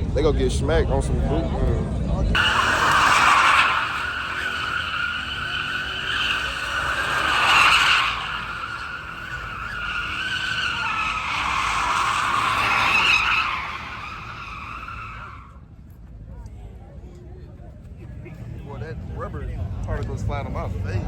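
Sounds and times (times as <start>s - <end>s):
car tyres squealing on pavement: 2.4s - 15.8s.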